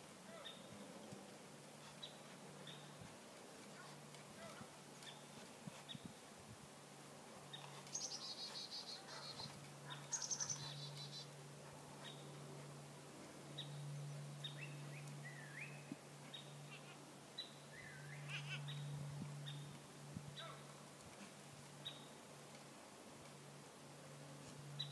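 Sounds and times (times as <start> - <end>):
low steady hum: 0.0 - 24.9
songbirds singing: 0.3 - 3.1, 7.4 - 11.4, 13.5 - 19.8, 21.8 - 22.2.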